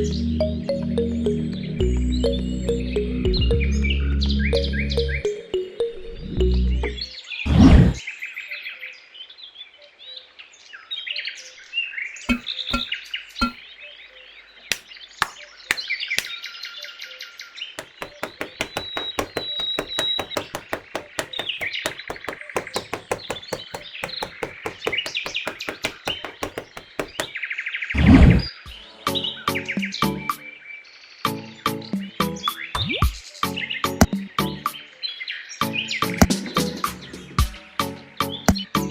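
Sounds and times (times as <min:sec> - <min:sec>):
short knocks: 0:12.3 - 0:13.6, 0:17.8 - 0:27.3.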